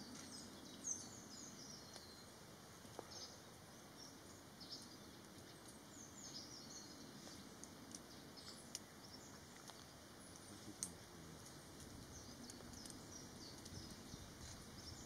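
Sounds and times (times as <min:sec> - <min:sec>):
faint clicks: 0:09.5 - 0:14.0.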